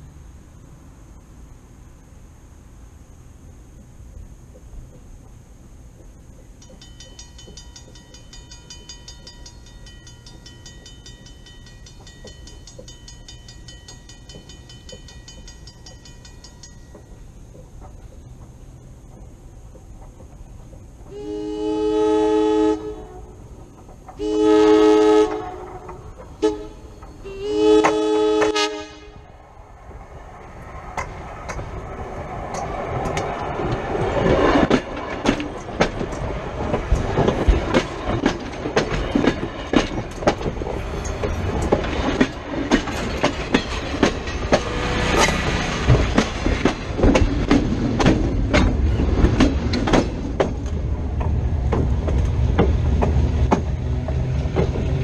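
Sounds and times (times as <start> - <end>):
train rumbling over track: 0.0 - 55.0
wheels clicking on rails: 3.7 - 21.4, 22.8 - 28.6, 29.2 - 55.0
locomotive horn blasts: 21.1 - 23.4, 24.2 - 29.2.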